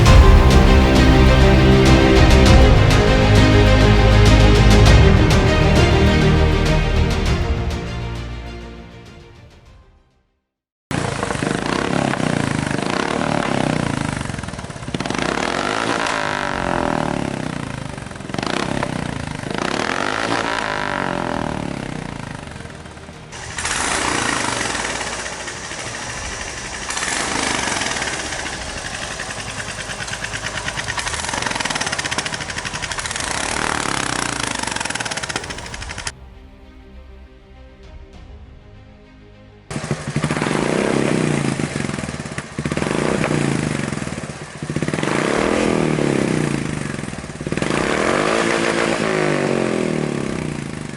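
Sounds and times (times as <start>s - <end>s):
motorcycle engine revving: 10.9s - 36.2s, 39.7s - 50.9s.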